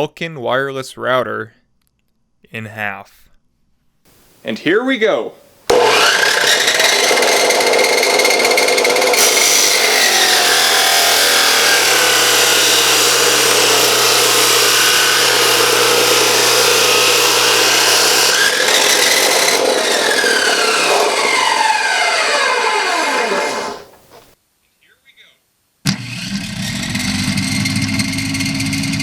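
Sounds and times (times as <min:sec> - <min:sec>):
chop saw cutting plastic: 0:05.7 - 0:24.4.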